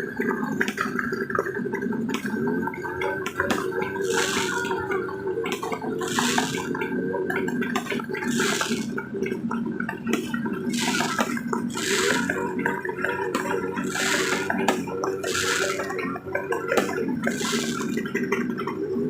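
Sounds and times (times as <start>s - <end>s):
fireworks crackling pops: 3.3s - 4.7s, 5.5s - 6.7s, 7.8s - 8.9s, 10.2s - 12.4s, 13.4s - 16.0s, 16.7s - 18.1s
fireworks hiss: 3.4s - 4.7s, 6.0s - 6.7s, 8.2s - 8.9s, 10.2s - 12.4s, 13.4s - 15.9s, 16.8s - 18.1s.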